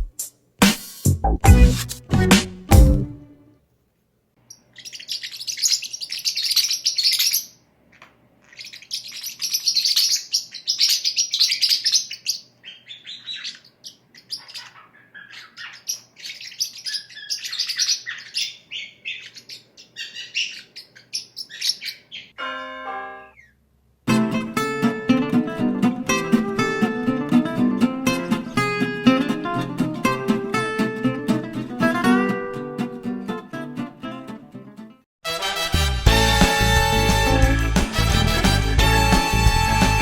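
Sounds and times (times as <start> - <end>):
parrot chirping and chattering: 4.4 - 22.4.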